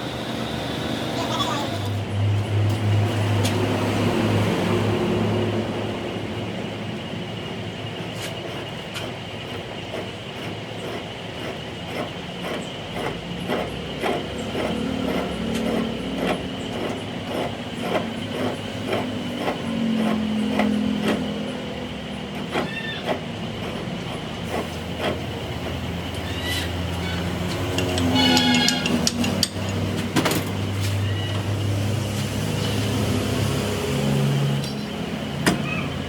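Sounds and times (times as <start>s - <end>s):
workshop machine running: 0.0s - 36.0s
irregular clicks and knocks: 8.0s - 30.7s.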